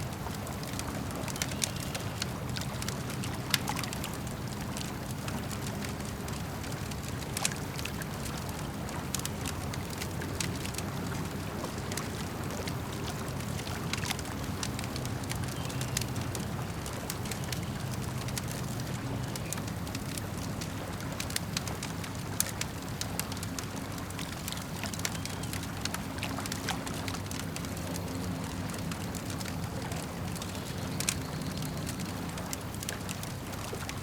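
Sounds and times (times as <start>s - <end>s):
campfire crackling: 0.0s - 34.0s
lake water lapping: 0.0s - 34.0s.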